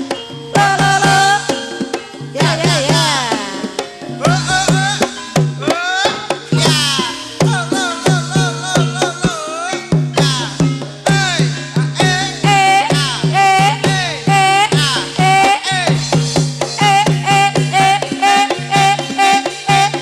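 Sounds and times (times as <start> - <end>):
sustained gamelan tones: 0.0 - 20.0.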